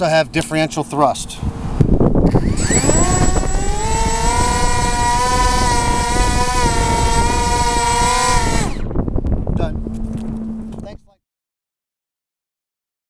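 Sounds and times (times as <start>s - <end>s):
electric motors whining: 2.2s - 9.0s.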